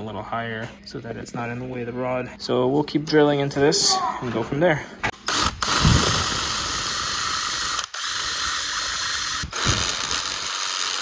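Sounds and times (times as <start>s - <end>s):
power drill boring: 5.3s - 11.0s.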